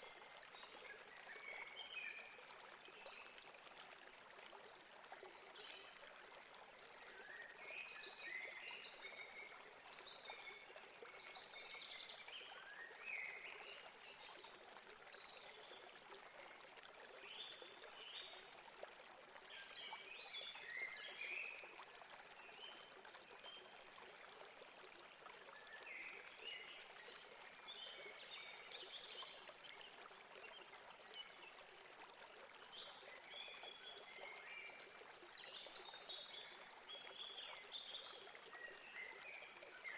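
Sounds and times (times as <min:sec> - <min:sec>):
water running over rocks: 0:00.0 - 0:39.9.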